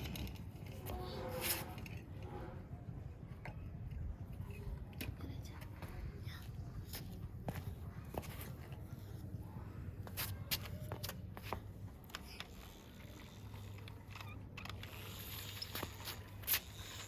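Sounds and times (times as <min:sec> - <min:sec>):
light clicks and scrapes: 0:00.0 - 0:02.7, 0:10.0 - 0:17.0.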